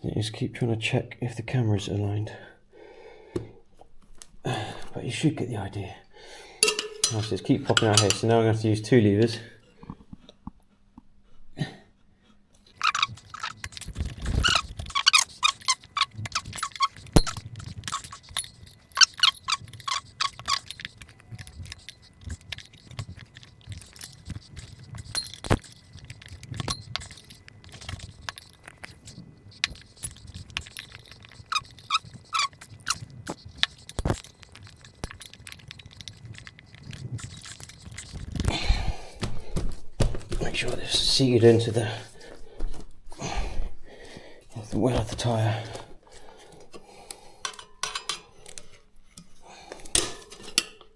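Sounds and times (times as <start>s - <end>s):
rubber squeaking against rim: 6.7s - 8.3s, 12.7s - 40.2s.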